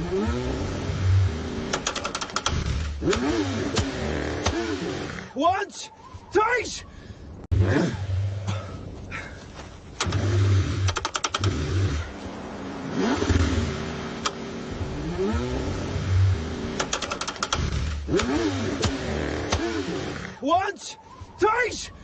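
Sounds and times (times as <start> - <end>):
car engine cranking: 0.0 - 5.3, 9.9 - 20.4
rapid clicking: 1.7 - 3.3, 10.8 - 11.6, 16.8 - 19.6.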